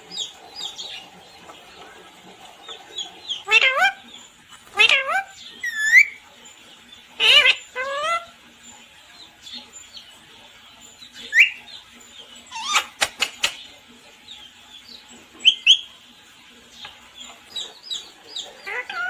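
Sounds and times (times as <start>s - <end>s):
parrot squawking: 3.3s - 4.0s, 4.7s - 6.2s, 7.2s - 8.4s, 12.5s - 13.0s, 18.6s - 19.0s.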